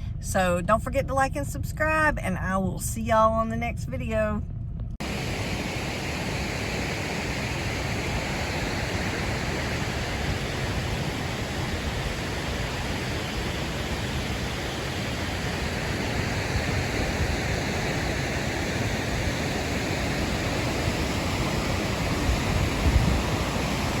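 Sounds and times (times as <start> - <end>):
waterfall roaring: 5.0 - 24.0.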